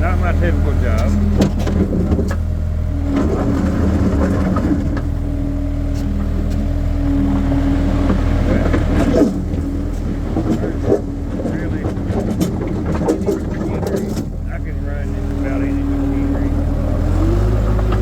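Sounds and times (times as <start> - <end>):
skid steer engine running: 0.0 - 18.0
machine knocks and rattles: 0.8 - 5.2, 7.3 - 14.7.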